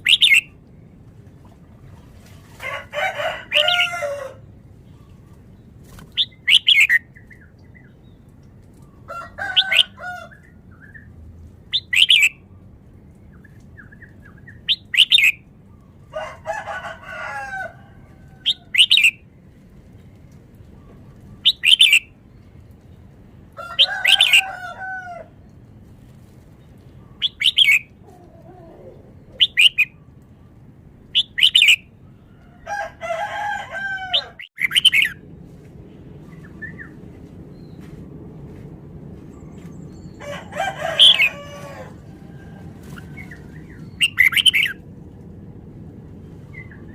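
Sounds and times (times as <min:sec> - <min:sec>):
bird singing bright phrases: 0:00.0 - 0:00.6, 0:04.9 - 0:09.0, 0:11.7 - 0:12.4, 0:13.1 - 0:16.0, 0:20.8 - 0:22.5, 0:27.0 - 0:28.0, 0:31.2 - 0:31.9, 0:34.5 - 0:35.2
longer lower bird calls: 0:00.0 - 0:00.6, 0:06.0 - 0:08.2, 0:11.7 - 0:12.6, 0:18.4 - 0:19.2, 0:20.8 - 0:22.2, 0:31.2 - 0:32.3, 0:42.8 - 0:44.8.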